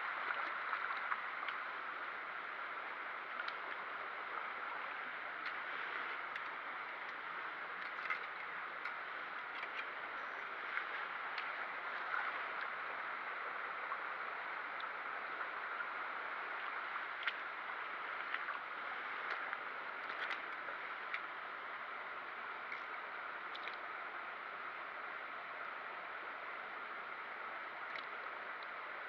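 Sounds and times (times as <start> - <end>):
flowing stream water: 0.0 - 29.0
faint clicks: 22.6 - 23.9, 27.8 - 28.8.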